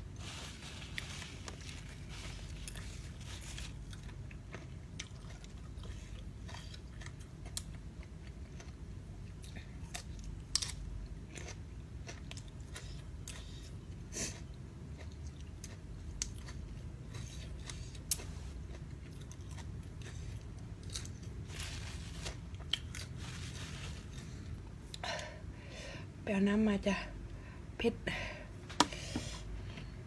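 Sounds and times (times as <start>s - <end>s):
person chewing shrimp: 1.4s - 25.0s.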